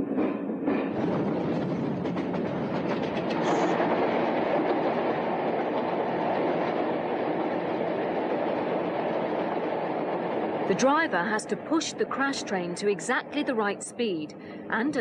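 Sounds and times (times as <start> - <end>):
train engine and wheels rumbling: 0.0 - 15.0
wheels clicking over rail joints: 0.2 - 11.0.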